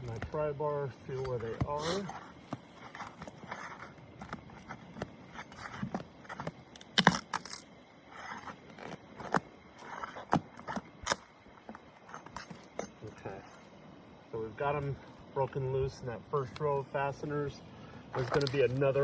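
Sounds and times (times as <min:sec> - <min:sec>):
pry bar scraping under shingles: 0:00.0 - 0:13.7.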